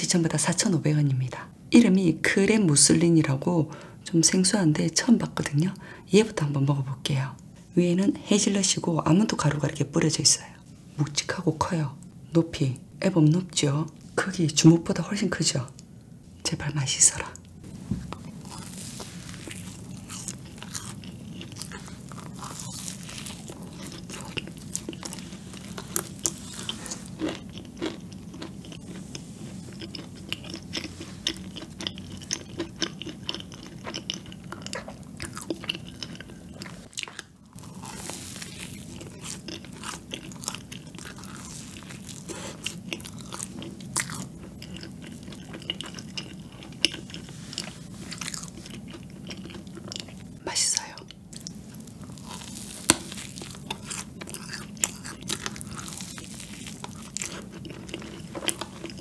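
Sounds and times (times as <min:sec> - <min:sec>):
small crisp crunches: 0:18.0 - 0:50.3, 0:51.3 - 0:59.0
biting and chewing donut: 0:18.0 - 0:59.0.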